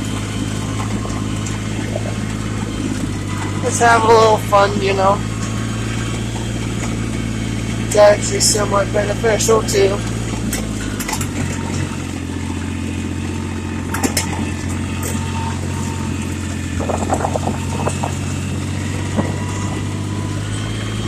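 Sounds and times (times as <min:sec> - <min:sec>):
tractor diesel engine running: 0:00.0 - 0:21.0
clicks and rattles: 0:16.8 - 0:18.2.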